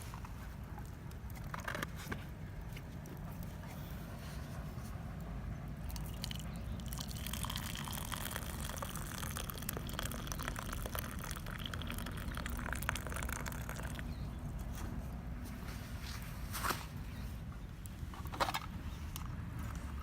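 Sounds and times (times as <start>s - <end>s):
water hissing in a metal cup: 6.0s - 14.1s.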